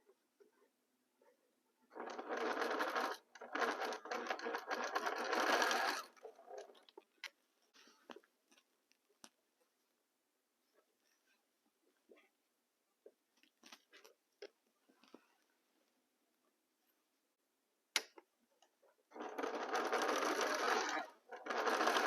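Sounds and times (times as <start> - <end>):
sewing machine stitching: 1.9 - 6.8, 19.1 - 22.0.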